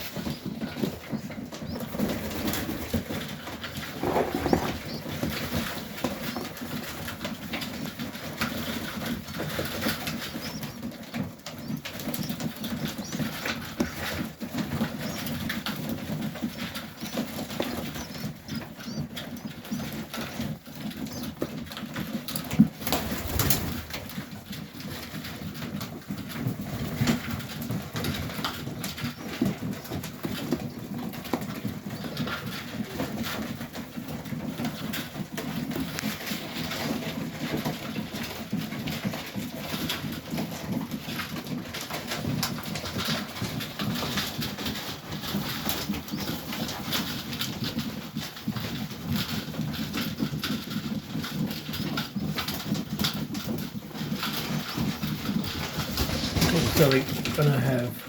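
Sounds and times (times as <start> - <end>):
pigeons cooing: 0.0 - 7.3, 53.9 - 58.0
pigeons scratching and fluttering: 0.0 - 58.0.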